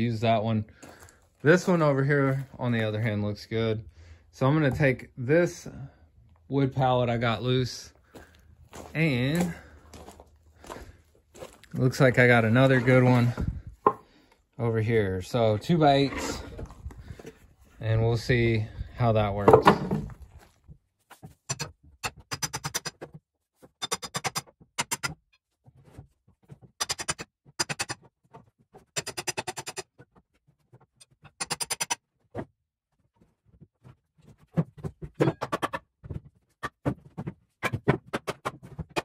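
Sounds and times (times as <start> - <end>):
pallet boards clicking and rattling: 21.5 - 25.2, 26.6 - 28.1, 28.8 - 30.2, 30.8 - 32.0, 34.3 - 39.0.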